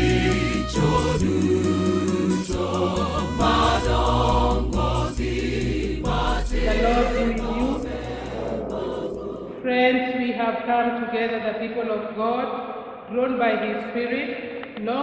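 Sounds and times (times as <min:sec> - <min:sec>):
instrumental backing with beat: 0:00.0 - 0:09.6
choir singing gospel: 0:00.0 - 0:10.3.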